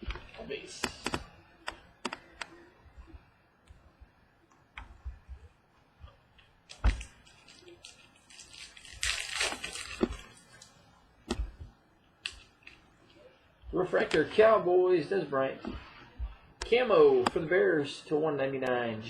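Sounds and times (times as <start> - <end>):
cards clicking and tapping: 0.0 - 2.6
foil pack tearing open: 6.7 - 10.4.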